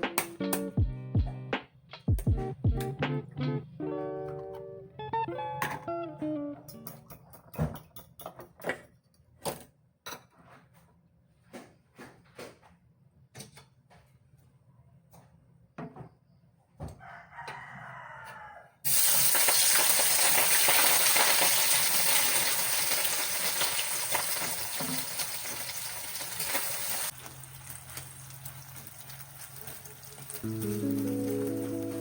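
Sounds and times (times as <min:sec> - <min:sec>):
rooster crowing: 0:16.9 - 0:18.8
food sizzling in hot oil: 0:18.9 - 0:32.0.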